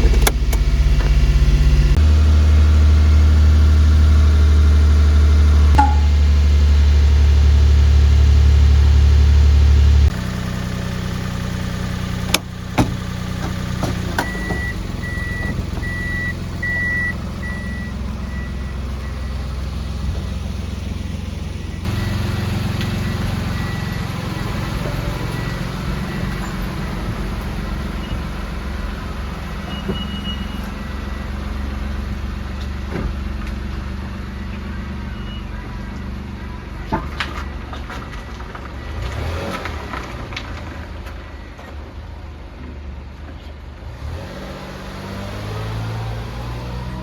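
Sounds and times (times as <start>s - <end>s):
truck engine running: 0.0s - 42.3s
road noise: 0.0s - 47.0s
high repeating beep: 5.8s - 6.2s.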